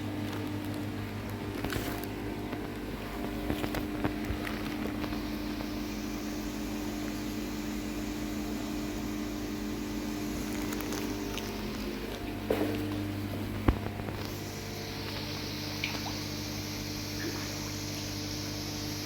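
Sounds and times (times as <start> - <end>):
pond pump humming: 0.0 - 19.0
even hiss: 14.3 - 19.0.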